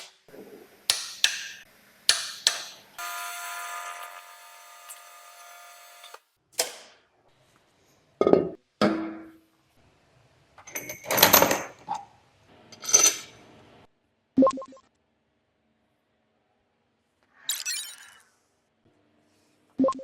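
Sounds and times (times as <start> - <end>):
metal tools clinking: 12.8 - 13.4.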